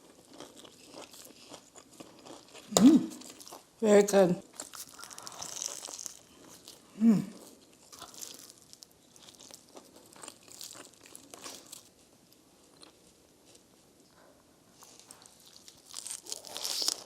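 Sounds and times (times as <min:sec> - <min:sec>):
person chewing and crunching: 0:00.0 - 0:03.7, 0:04.5 - 0:11.9, 0:12.7 - 0:13.0, 0:14.8 - 0:17.0.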